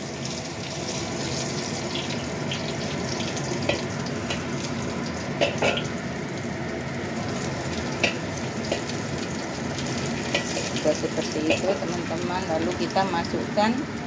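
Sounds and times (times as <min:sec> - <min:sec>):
garlic sizzling in hot oil: 0:00.0 - 0:14.0
metal spatula scraping wok: 0:09.8 - 0:11.8.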